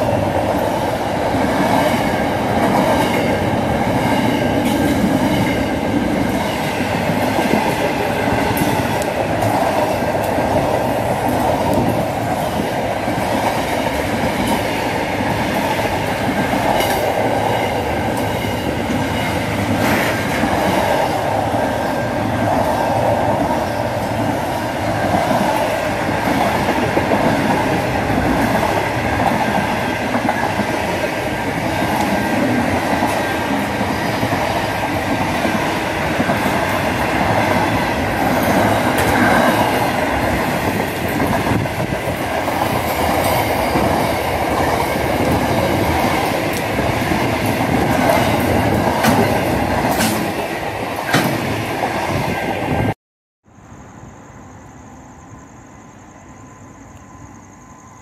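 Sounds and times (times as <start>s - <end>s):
steel wheels rumbling on rail: 0.0s - 53.0s
faint high-pitched ringing tones: 53.5s - 58.0s.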